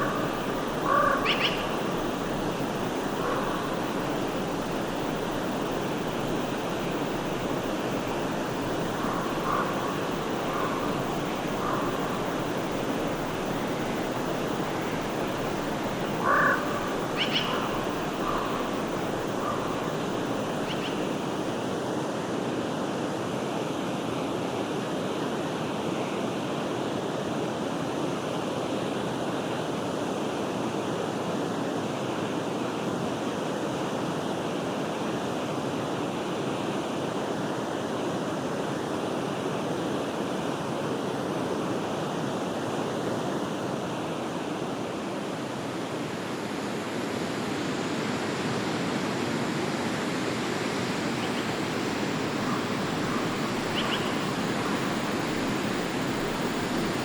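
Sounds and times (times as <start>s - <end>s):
short bird calls: 0.0s - 1.9s, 16.2s - 18.7s, 20.6s - 21.2s, 52.4s - 54.9s
stream flowing: 0.0s - 22.5s, 43.4s - 57.0s.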